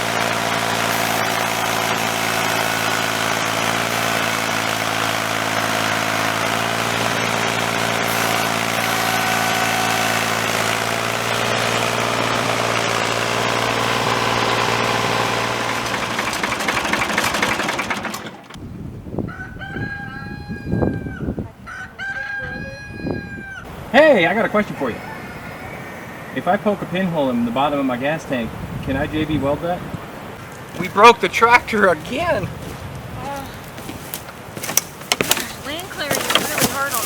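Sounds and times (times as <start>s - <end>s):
tractor engine running: 0.0s - 18.8s, 33.6s - 37.0s
rooster crowing: 19.2s - 23.7s, 25.0s - 26.4s.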